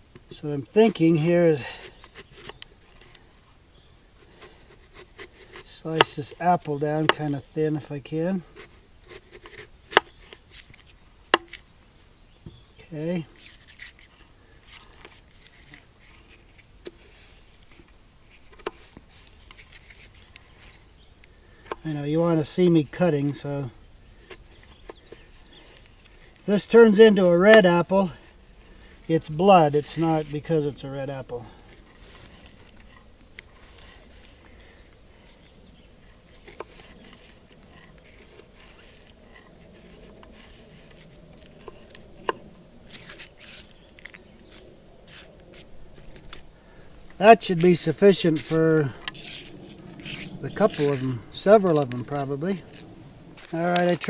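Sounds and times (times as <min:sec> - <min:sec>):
handling rustles: 0:12.5 - 0:54.0.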